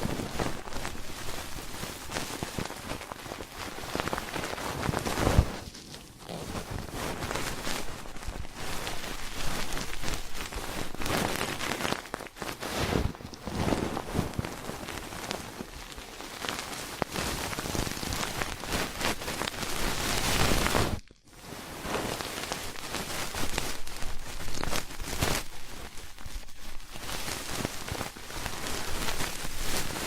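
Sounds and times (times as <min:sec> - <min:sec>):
ear pick scratching: 0:04.0 - 0:11.9.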